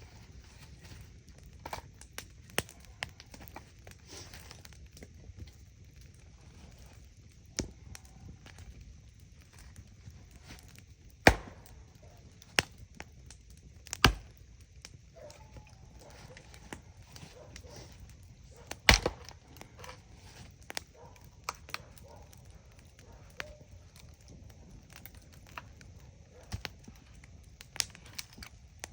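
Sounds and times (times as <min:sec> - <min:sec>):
campfire crackling: 0:00.0 - 0:28.9
wood being chopped: 0:11.2 - 0:11.8, 0:13.9 - 0:14.3, 0:18.7 - 0:20.0.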